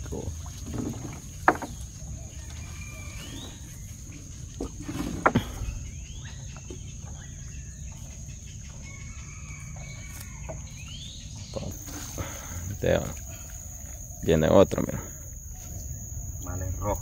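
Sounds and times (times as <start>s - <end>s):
net knocking on wooden canoe: 0.6s - 1.8s
birds short rising calls: 1.6s - 17.0s
steady low rumble: 15.0s - 17.0s.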